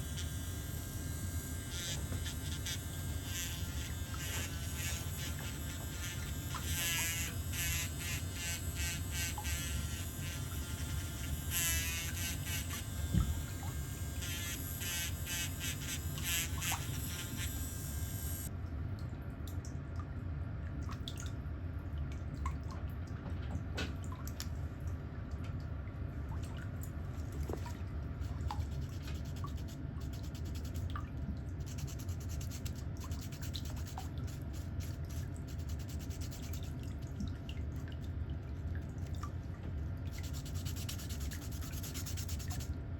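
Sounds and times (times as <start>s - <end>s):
electric nail drill whining: 0.0s - 18.5s
low steady hum: 0.0s - 42.9s
faint small clicks and scrapes: 27.3s - 31.0s, 31.6s - 36.8s.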